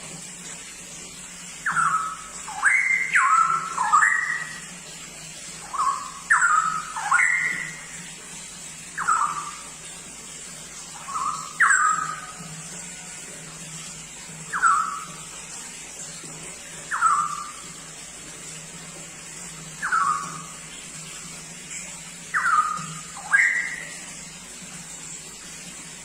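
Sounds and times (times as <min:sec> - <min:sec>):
bird singing whistled notes: 0:01.6 - 0:04.6, 0:05.6 - 0:07.8, 0:09.0 - 0:09.6, 0:11.0 - 0:12.4, 0:14.5 - 0:15.2, 0:16.9 - 0:17.6, 0:19.8 - 0:20.6, 0:22.3 - 0:24.0.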